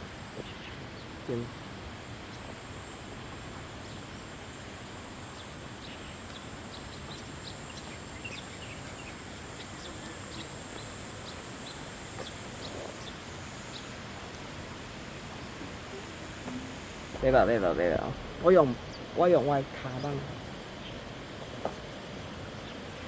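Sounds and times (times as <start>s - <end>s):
insect chorus: 0.0s - 23.0s
bird chirps: 15.9s - 21.0s.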